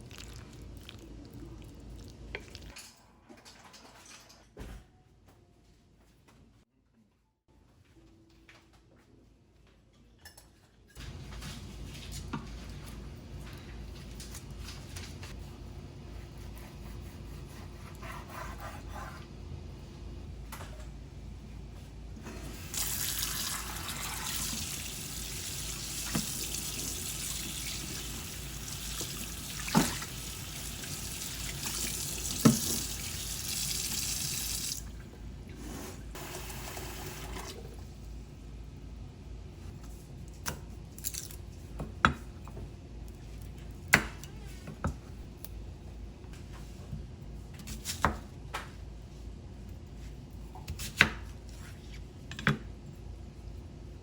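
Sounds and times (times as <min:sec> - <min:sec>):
tap water running into sink: 0:22.6 - 0:34.9.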